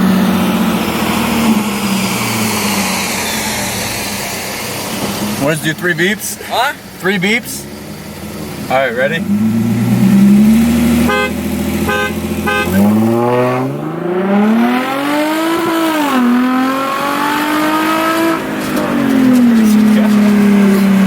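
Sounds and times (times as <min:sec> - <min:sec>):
car engine revving: 0:00.0 - 0:21.0
car horn beeps: 0:11.0 - 0:13.7.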